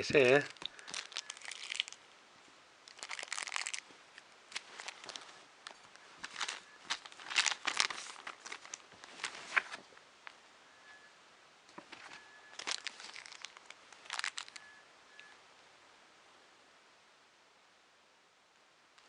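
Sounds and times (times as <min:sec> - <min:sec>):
plastic packaging crinkling: 0:00.0 - 0:02.0, 0:02.8 - 0:09.9, 0:11.8 - 0:14.8.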